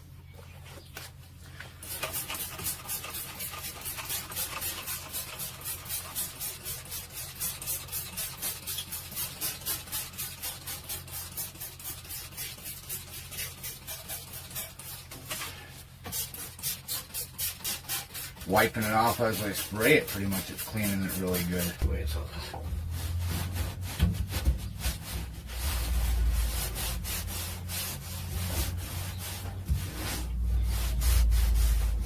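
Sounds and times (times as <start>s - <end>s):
rhythmic scrubbing strokes: 16.1s - 32.0s
steady low hum: 18.2s - 32.0s.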